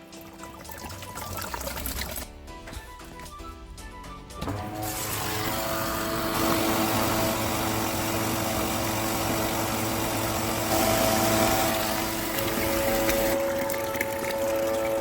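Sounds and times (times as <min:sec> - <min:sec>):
electric pump humming: 0:04.4 - 0:15.0
rushing water: 0:12.2 - 0:15.0.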